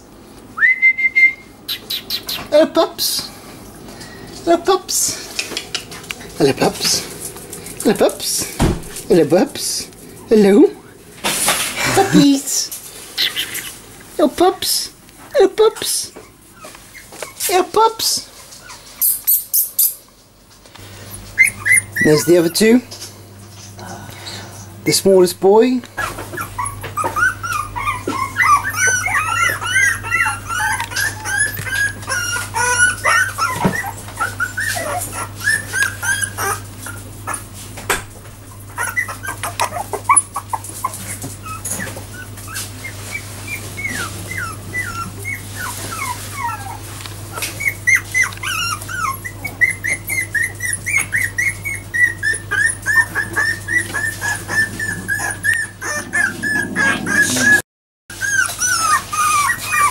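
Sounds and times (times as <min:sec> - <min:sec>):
puppies whimpering and squeaking: 0:03.9 - 0:11.0, 0:11.6 - 0:13.8, 0:15.6 - 0:20.0, 0:20.8 - 0:37.8, 0:38.4 - 0:59.9.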